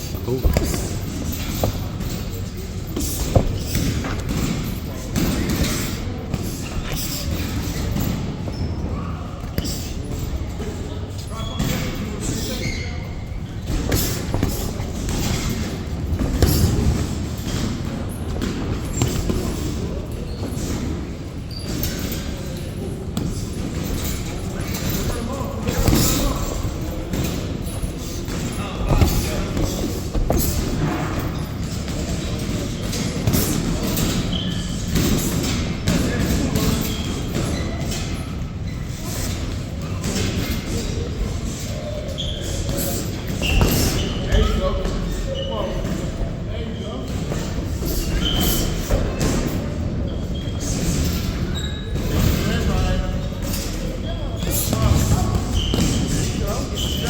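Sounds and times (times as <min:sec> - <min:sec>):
footwork on ring canvas: 0:00.0 - 0:57.0
boxing punches thudding: 0:00.1 - 0:08.3, 0:24.8 - 0:38.1
gloved punches thumping: 0:00.4 - 0:02.2.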